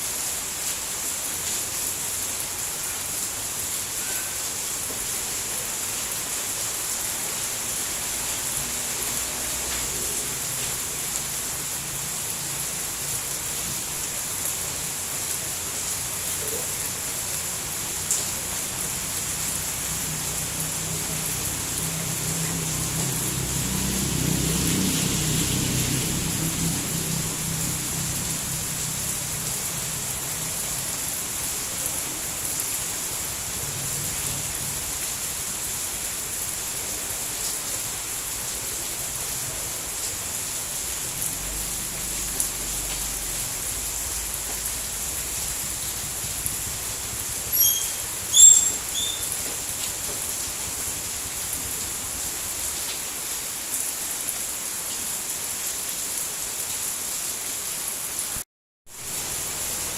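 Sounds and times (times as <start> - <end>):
steady rain: 0.0 - 59.9
short high chirps: 47.5 - 49.3.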